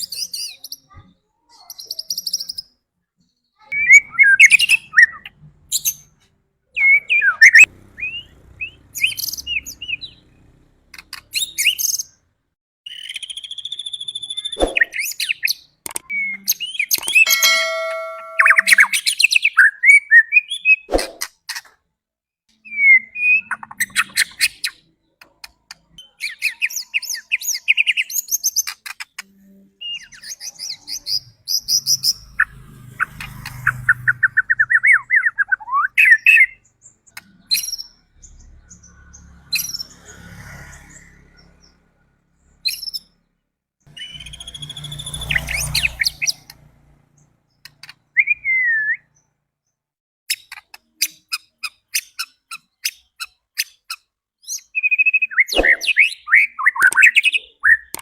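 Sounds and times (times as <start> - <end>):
songbird whistling and chattering: 44.0 - 46.4, 54.5 - 58.0.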